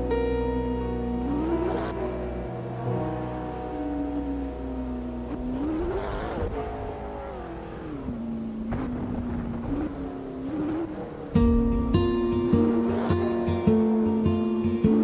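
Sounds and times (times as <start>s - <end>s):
car engine drone: 0.0s - 15.0s
acoustic guitar strum: 11.4s - 15.0s.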